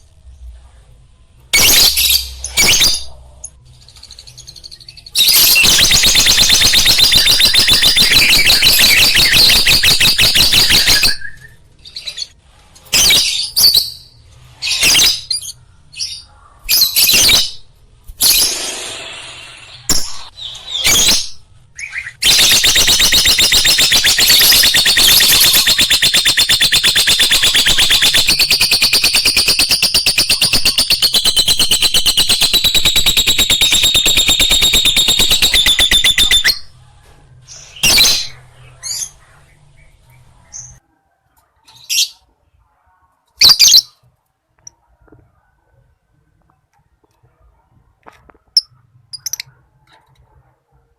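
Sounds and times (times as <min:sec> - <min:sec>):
lovebird chattering trills: 0:22.3 - 0:36.7.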